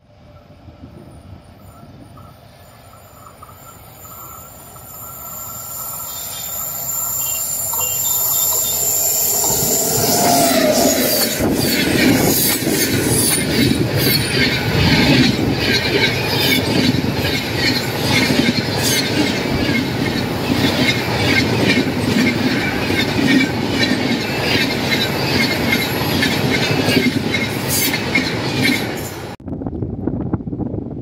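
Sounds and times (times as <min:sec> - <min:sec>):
train wheels rumbling on rails: 0:00.0 - 0:31.0
wind-like noise: 0:07.6 - 0:24.2, 0:24.8 - 0:31.0.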